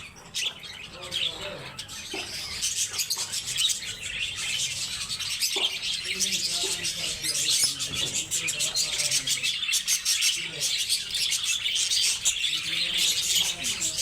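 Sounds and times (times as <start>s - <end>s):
lovebirds chattering: 0.0s - 14.0s.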